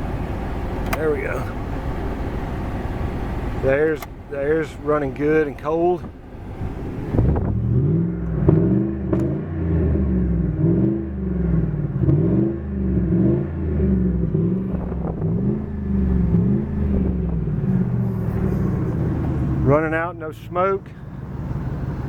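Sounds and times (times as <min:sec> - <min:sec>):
engine revving: 0:06.0 - 0:22.0.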